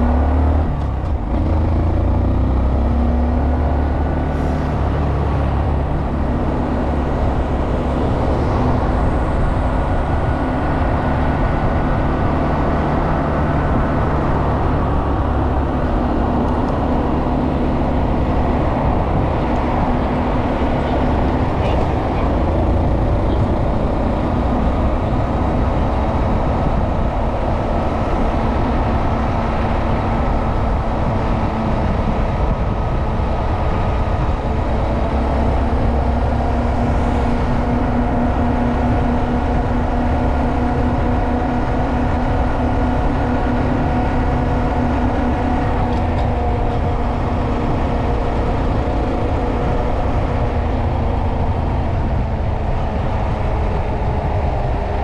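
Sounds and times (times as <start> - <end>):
wind and road noise rumble: 0.0 - 55.0.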